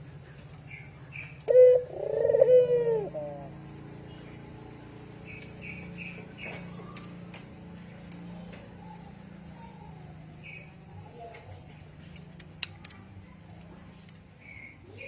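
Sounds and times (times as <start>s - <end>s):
steady low hum: 0.0s - 15.0s
dove cooing: 1.1s - 3.7s.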